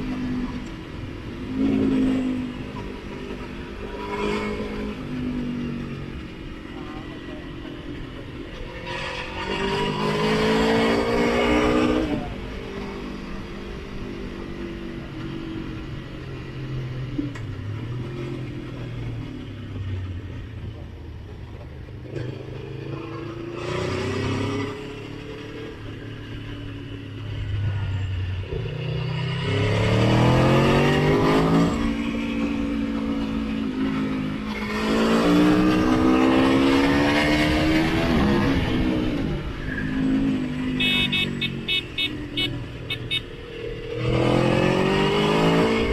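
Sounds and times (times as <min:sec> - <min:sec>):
motorcycle engine revving: 0:22.0 - 0:45.9.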